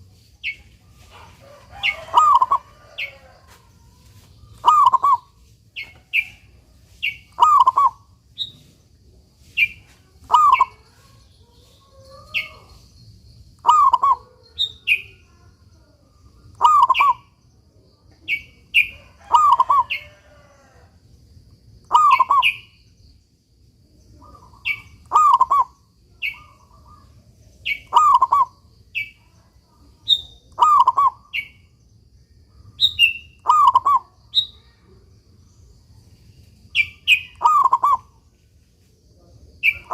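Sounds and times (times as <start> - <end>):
dove cooing: 1.0 - 3.3, 4.6 - 5.4, 7.4 - 8.0, 10.3 - 10.8, 13.6 - 14.4, 16.6 - 17.2, 19.2 - 20.6, 21.9 - 22.6, 24.3 - 27.0, 27.8 - 28.5, 30.6 - 31.2, 33.4 - 34.1, 37.4 - 38.1
high chirps: 7.0 - 8.7, 36.7 - 38.3.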